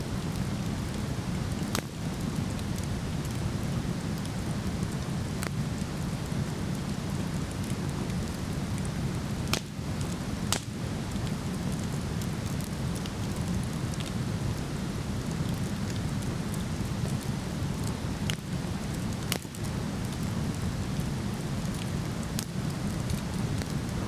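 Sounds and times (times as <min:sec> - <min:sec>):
wood fire crackling: 0:00.0 - 0:24.0
burning wood popping: 0:00.1 - 0:24.0.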